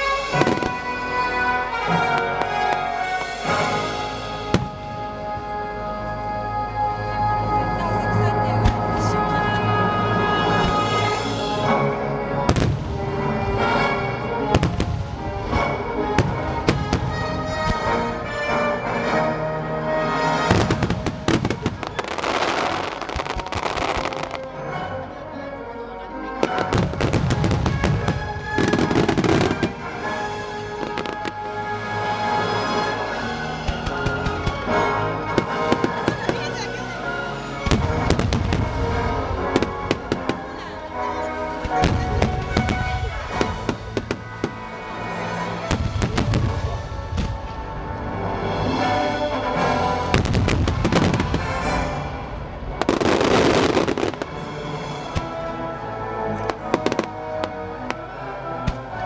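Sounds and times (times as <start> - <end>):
fireworks bangs and crackles: 0.0 - 5.9, 8.0 - 19.2, 19.9 - 24.8, 26.2 - 59.0
music: 0.0 - 59.0
dense firework crackling: 20.4 - 24.5, 26.4 - 34.7, 37.6 - 40.8, 41.6 - 47.7, 50.0 - 55.4.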